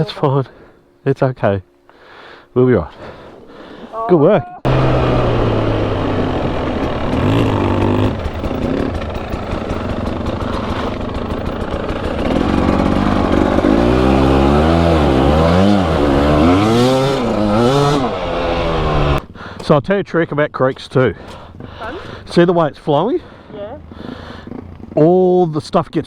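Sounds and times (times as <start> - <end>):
motorcycle engine revving: 4.7 - 19.3.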